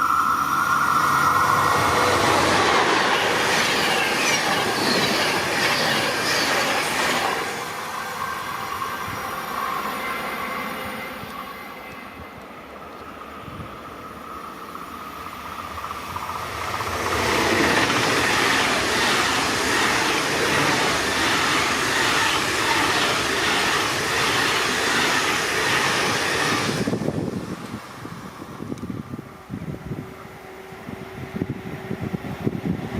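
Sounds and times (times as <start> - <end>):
wheels rattling on rails: 0.0 - 10.0, 11.2 - 30.0
train passing close by: 0.0 - 32.9.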